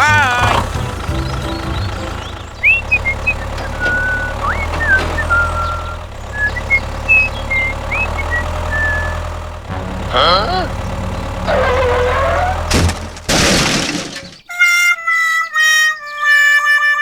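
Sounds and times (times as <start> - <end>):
high chirps and whistled notes: 0.0 - 9.5
engine droning: 0.0 - 14.4.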